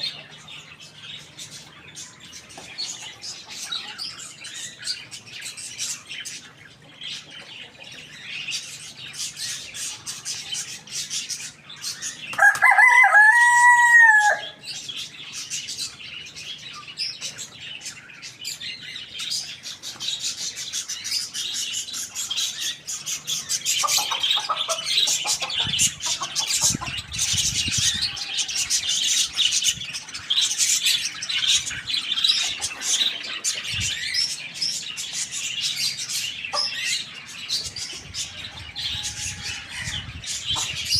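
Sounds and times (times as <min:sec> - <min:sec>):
small birds chirping: 0:00.0 - 0:40.9
rooster crowing: 0:12.4 - 0:14.6, 0:38.3 - 0:40.2
hens clucking: 0:22.6 - 0:29.6, 0:31.4 - 0:34.3, 0:37.6 - 0:40.9.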